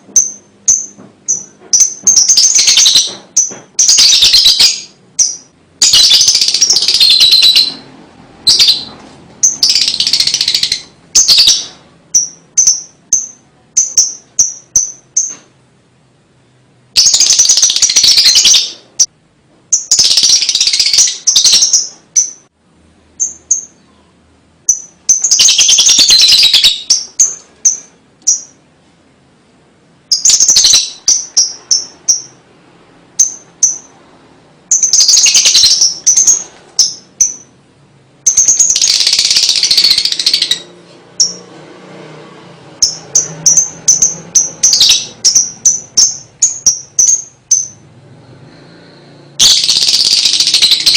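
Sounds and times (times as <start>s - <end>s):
lovebird chattering trills: 0.2s - 7.8s, 8.5s - 15.4s, 17.0s - 19.1s, 19.7s - 22.5s, 24.7s - 28.6s, 30.1s - 32.4s, 34.7s - 37.5s, 38.2s - 41.4s, 42.8s - 47.8s, 49.4s - 50.9s.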